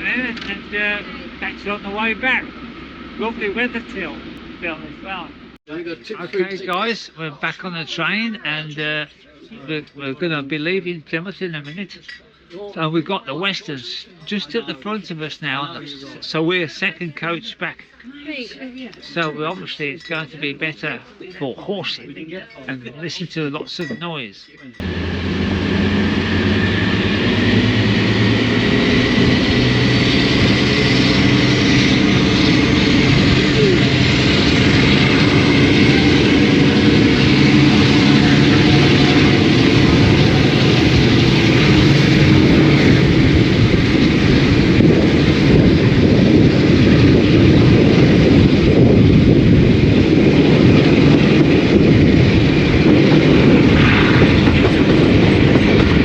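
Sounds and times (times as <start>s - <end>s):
diesel locomotive engines working hard: 0.0s - 8.6s, 24.8s - 56.0s
high whine rising in pitch: 24.8s - 56.0s.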